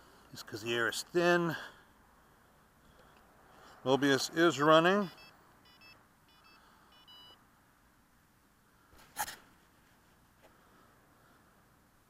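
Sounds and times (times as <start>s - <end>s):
short high electronic beeps: 5.1s - 7.4s.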